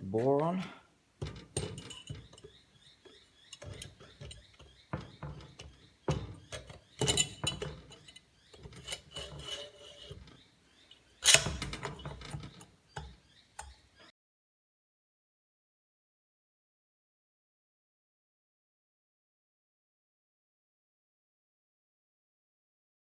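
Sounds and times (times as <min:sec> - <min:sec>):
metallic clinks and knocks: 0:01.2 - 0:13.8.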